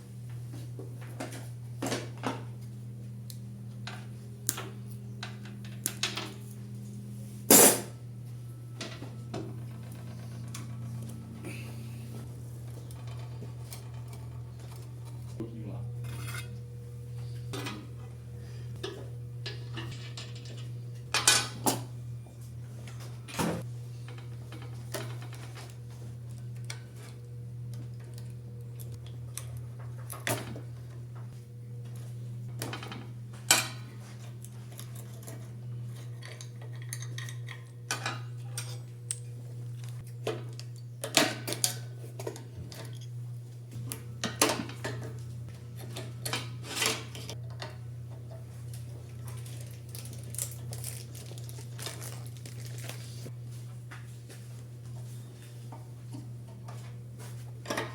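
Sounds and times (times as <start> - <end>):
steady low hum: 0.0 - 57.9
metal tools clinking: 18.8 - 21.6.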